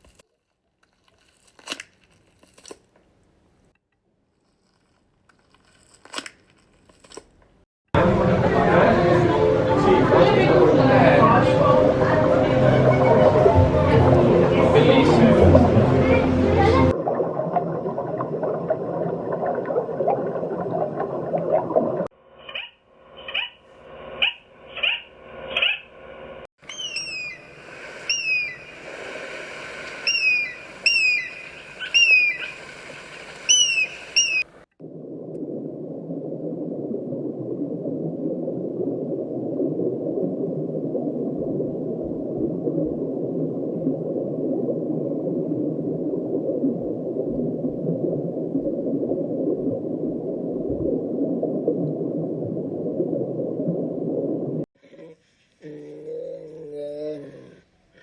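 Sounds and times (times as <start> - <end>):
bird calls sliding down in pitch: 26.6 - 34.6.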